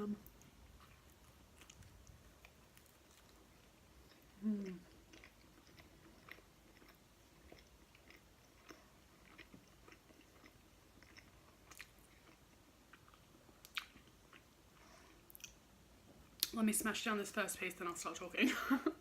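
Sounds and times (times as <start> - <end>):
chewing food: 0.2 - 15.6.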